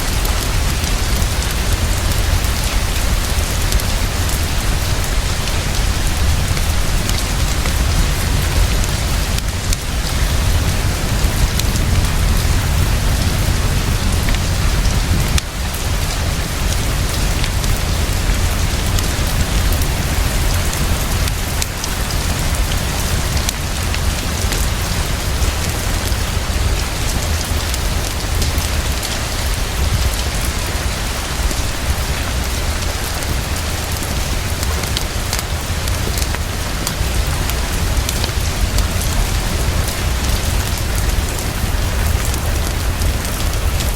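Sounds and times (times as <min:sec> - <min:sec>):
heavy rainfall: 0:00.0 - 0:43.9
deep low rumble: 0:00.1 - 0:29.0.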